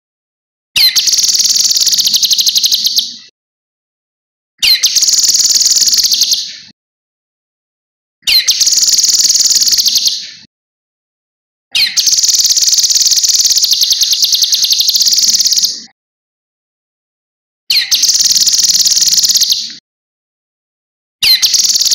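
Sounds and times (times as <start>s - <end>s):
bird singing high rapid trills: 0.8s - 3.1s, 4.6s - 6.5s, 8.3s - 10.2s, 11.8s - 15.8s, 17.7s - 19.6s, 21.2s - 21.9s.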